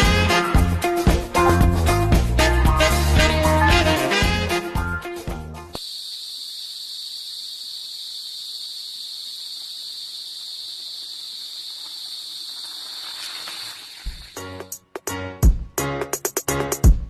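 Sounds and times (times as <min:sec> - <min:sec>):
insects buzzing chorus: 0:05.7 - 0:14.7.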